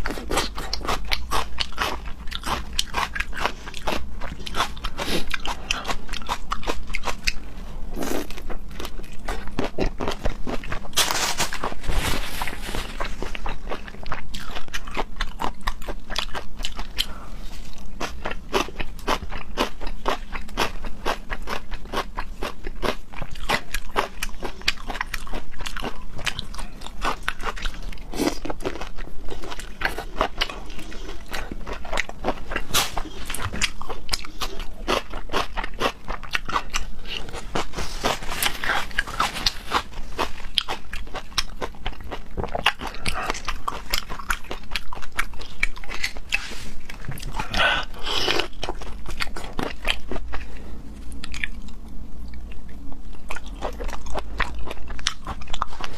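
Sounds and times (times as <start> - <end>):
person chewing crunchy food: 0.0 - 55.9.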